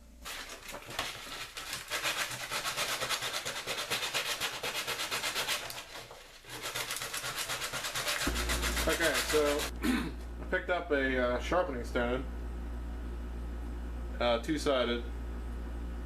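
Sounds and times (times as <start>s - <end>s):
sandpaper rubbing on wood: 1.1s - 9.7s.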